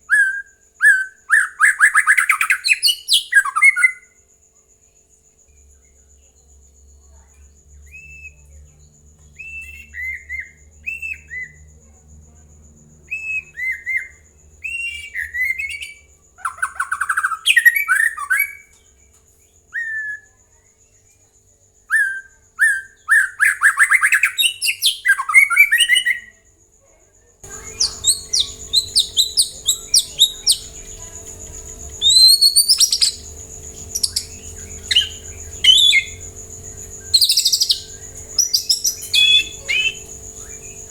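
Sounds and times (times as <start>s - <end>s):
bird singing whistled phrases: 0.0s - 4.1s, 7.9s - 8.5s, 9.4s - 11.7s, 13.1s - 18.7s, 19.7s - 20.4s, 21.9s - 26.4s, 27.5s - 31.0s, 31.9s - 36.3s, 37.0s - 40.9s
steady background hum: 27.4s - 40.9s.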